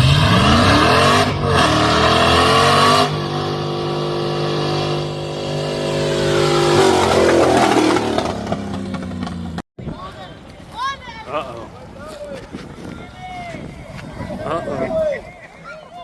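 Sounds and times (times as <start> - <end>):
truck engine revving: 0.0 - 9.6.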